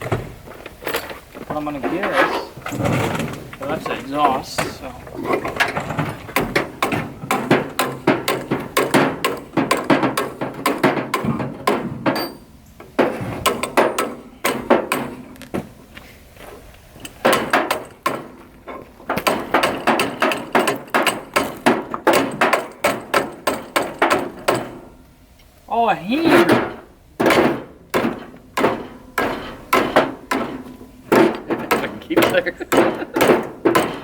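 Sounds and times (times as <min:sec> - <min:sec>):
hammer blows on rusted metal: 0:06.3 - 0:15.3, 0:19.2 - 0:24.9, 0:26.3 - 0:34.0.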